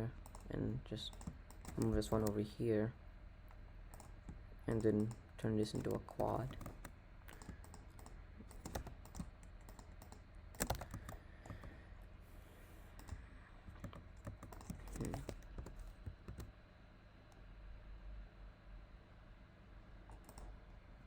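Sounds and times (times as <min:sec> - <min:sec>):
computer keyboard keystrokes: 0:00.2 - 0:02.4, 0:03.9 - 0:11.8, 0:13.0 - 0:16.5, 0:20.1 - 0:20.5.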